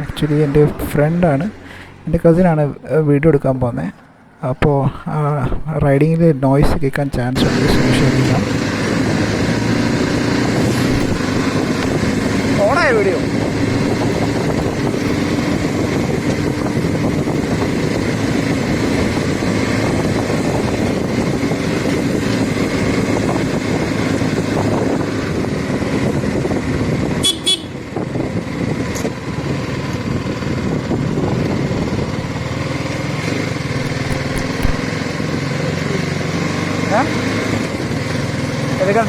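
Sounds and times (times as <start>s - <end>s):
riding wind noise: 0.0s - 36.0s
motorcycle engine running: 7.4s - 36.3s.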